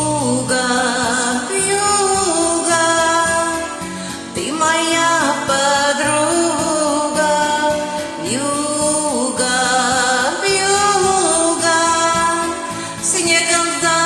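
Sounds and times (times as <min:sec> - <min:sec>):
karaoke backing track: 0:00.0 - 0:14.0
woman singing: 0:00.0 - 0:14.0.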